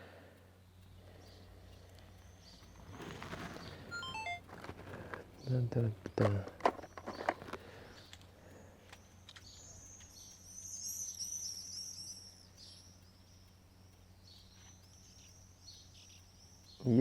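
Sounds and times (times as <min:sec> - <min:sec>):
songbird twittering: 0:00.6 - 0:04.4, 0:06.8 - 0:17.0.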